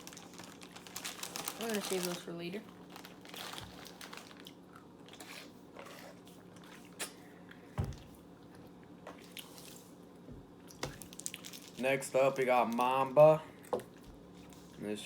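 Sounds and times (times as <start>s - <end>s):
package handling: 0.0s - 2.3s, 2.9s - 4.6s
faint hum: 0.0s - 15.0s
person chewing candy: 10.7s - 11.8s.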